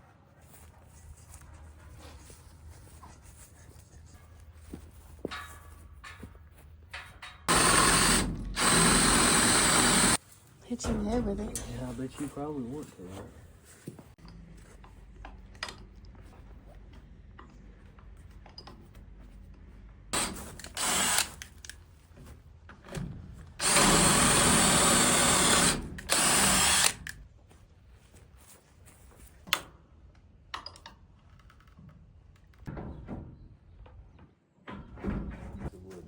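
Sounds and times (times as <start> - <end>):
power drill running: 7.5 - 10.2, 20.2 - 21.4, 23.6 - 27.2.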